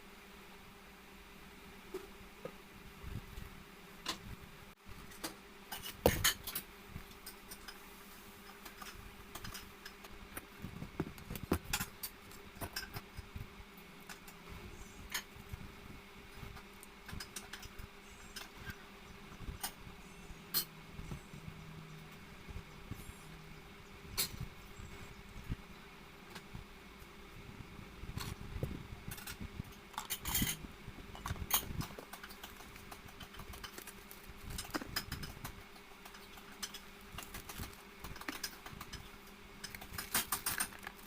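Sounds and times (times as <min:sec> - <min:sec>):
faint steady hum: 0:00.0 - 0:41.0
utensils and dishes clinking: 0:08.4 - 0:10.1, 0:20.5 - 0:20.8, 0:29.1 - 0:41.0.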